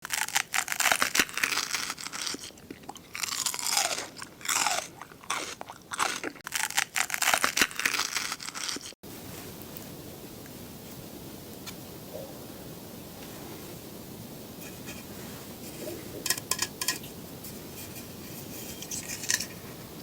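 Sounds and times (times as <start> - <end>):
crisp crunching of food: 0.0 - 9.0
faint steady hiss: 9.0 - 20.0.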